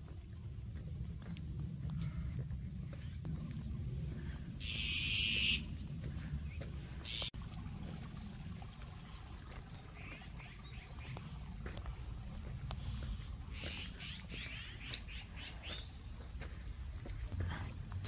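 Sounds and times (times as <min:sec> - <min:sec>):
low steady rumble: 0:00.0 - 0:18.0
harsh bird calls: 0:04.6 - 0:05.7.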